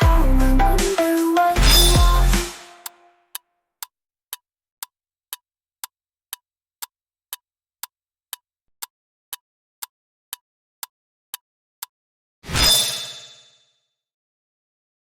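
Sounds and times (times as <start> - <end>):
countdown timer ticking: 0.0 - 3.0.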